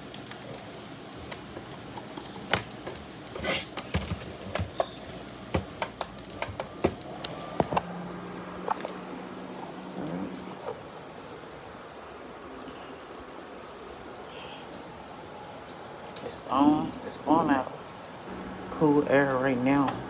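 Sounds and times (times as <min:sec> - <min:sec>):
clicks and knocks from handling: 0:01.2 - 0:07.9
low steady hum: 0:06.4 - 0:20.0.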